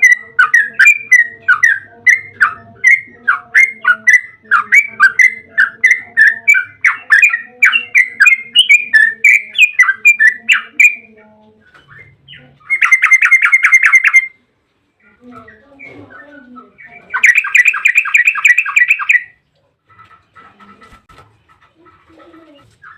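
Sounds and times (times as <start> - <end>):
bird chirping rapidly: 0.0 - 11.1, 11.8 - 14.4, 15.4 - 19.4.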